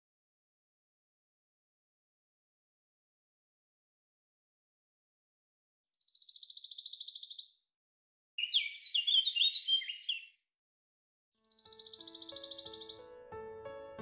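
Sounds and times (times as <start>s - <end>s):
songbird trilling: 6.0s - 7.6s, 8.4s - 10.4s, 11.4s - 13.0s
songbird chirping: 6.0s - 7.7s, 8.4s - 10.5s, 11.4s - 14.0s.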